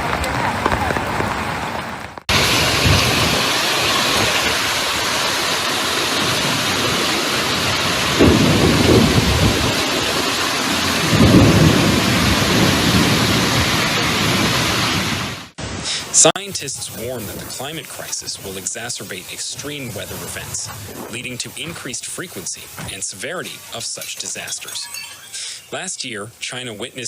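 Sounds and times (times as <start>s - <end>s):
thunder rumbles: 0.0s - 15.5s
heavy rain pouring: 0.0s - 27.0s.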